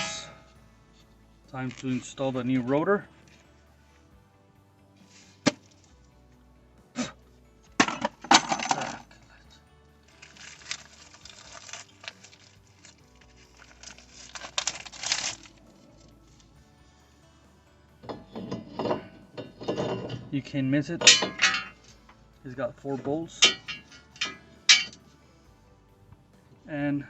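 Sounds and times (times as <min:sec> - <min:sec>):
metal scraping: 0:00.0 - 0:00.6, 0:18.0 - 0:25.2
metal clinks and knocks: 0:07.7 - 0:09.0, 0:18.0 - 0:22.2, 0:23.0 - 0:25.2.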